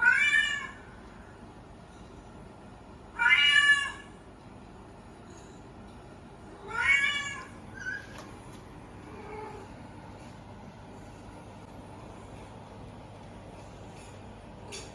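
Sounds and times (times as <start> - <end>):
cat meowing: 0.0 - 0.8, 3.2 - 4.1, 6.6 - 8.2, 9.1 - 9.7.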